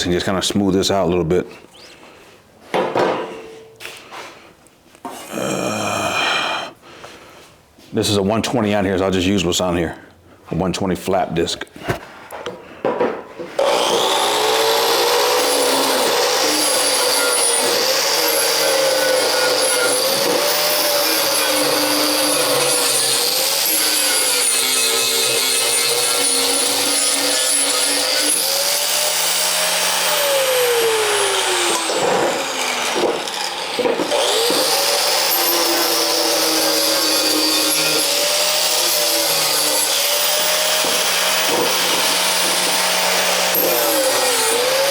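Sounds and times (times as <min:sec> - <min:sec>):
angle grinder sanding steel: 0:13.6 - 0:44.9.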